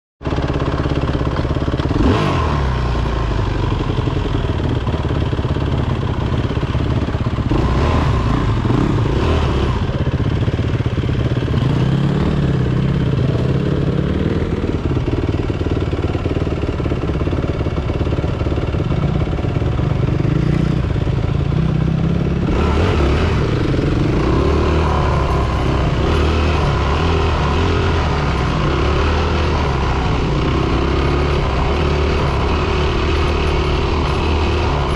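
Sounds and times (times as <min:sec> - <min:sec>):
dirt bike engine revving: 0:00.3 - 0:34.9.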